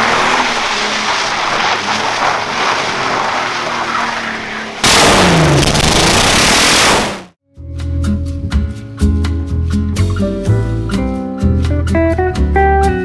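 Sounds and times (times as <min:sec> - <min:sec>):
car engine exhaust roar: 0:00.0 - 0:07.3.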